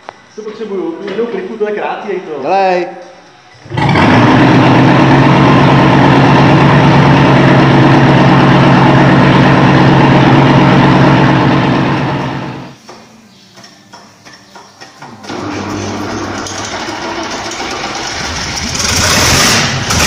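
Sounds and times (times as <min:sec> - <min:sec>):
engine idling fast: 0:03.6 - 0:12.8.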